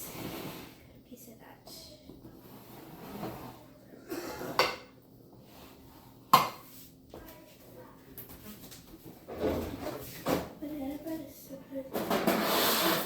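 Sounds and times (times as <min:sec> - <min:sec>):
dishes and utensils clattering: 0:02.6 - 0:05.0, 0:06.3 - 0:06.8, 0:08.3 - 0:10.6, 0:11.8 - 0:13.0.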